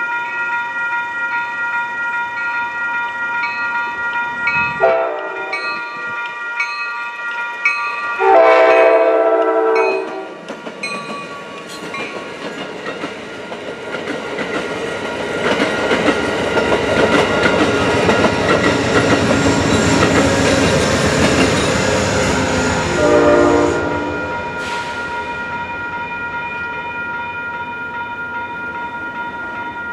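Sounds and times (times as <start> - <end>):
train passing rumble: 1.5 - 29.9
train horn: 4.7 - 5.8, 8.2 - 10.4, 22.0 - 25.0
wheels clacking over rail joints: 9.4 - 22.6.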